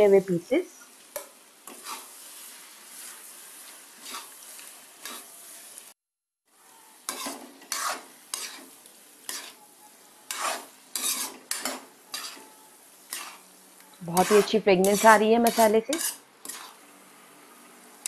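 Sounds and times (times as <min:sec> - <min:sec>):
gravy sizzling in a pan: 0:00.0 - 0:18.0
spoon scraping a metal pan: 0:01.2 - 0:02.2, 0:04.0 - 0:05.3, 0:07.1 - 0:09.6, 0:10.2 - 0:13.4, 0:14.0 - 0:16.8.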